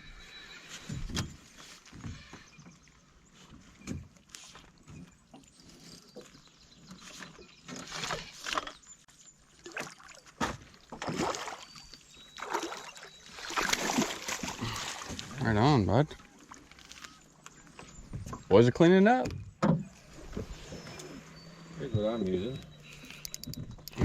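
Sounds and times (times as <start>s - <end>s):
water splashing against boat: 1.0s - 17.0s.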